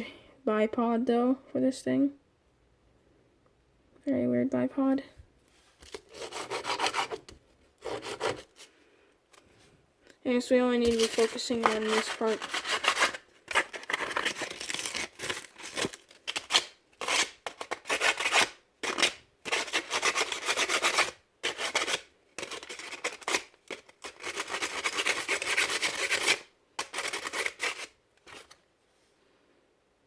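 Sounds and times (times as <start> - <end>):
sandpaper rubbing: 6.1 - 7.2, 7.8 - 8.5, 11.0 - 15.0, 17.0 - 23.5.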